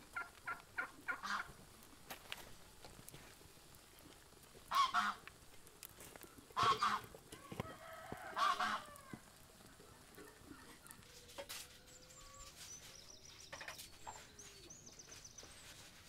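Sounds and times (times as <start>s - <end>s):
farmyard bird calling: 0.0s - 1.6s, 4.6s - 5.3s, 6.1s - 16.0s.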